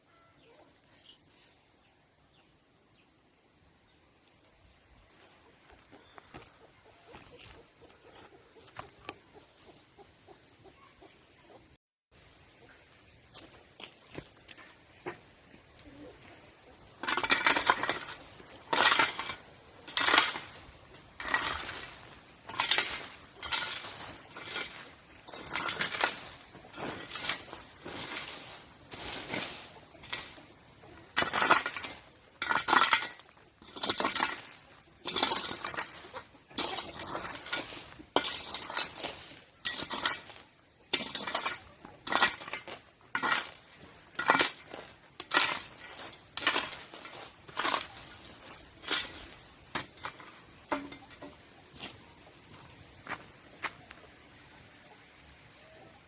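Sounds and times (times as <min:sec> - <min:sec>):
crunching scraping strokes: 0:16.1 - 0:53.8.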